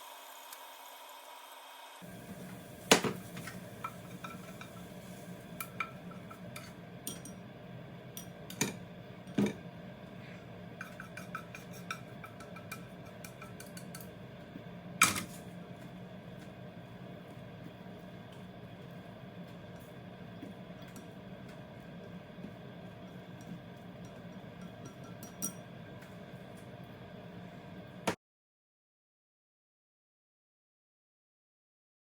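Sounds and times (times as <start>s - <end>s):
steady low hum: 2.0s - 28.1s
utensils clinking against dishes: 2.3s - 7.4s, 10.8s - 14.1s, 23.3s - 25.7s.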